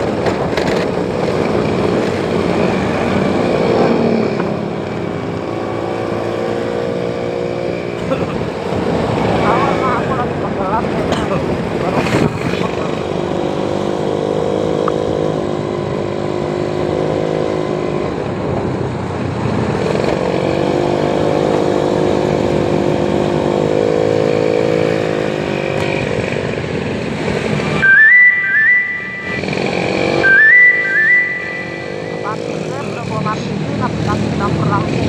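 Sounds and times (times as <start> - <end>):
electronic tone rising notes: 27.7 - 33.0.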